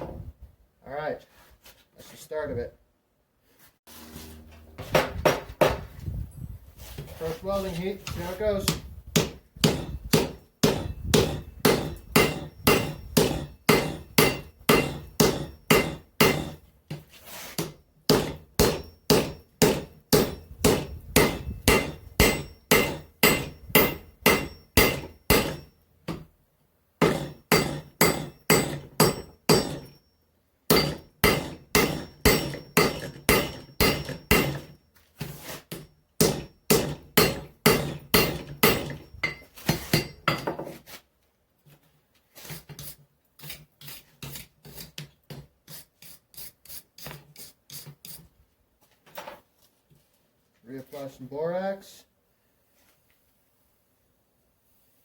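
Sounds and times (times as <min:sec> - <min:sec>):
hammer striking steel on anvil: 0:08.7 - 0:16.6, 0:17.6 - 0:26.3, 0:27.0 - 0:30.0, 0:30.7 - 0:34.8, 0:35.7 - 0:40.6
anvil ringing: 0:09.6 - 0:16.6, 0:18.2 - 0:25.8, 0:27.0 - 0:30.1, 0:30.7 - 0:34.8, 0:36.2 - 0:40.4.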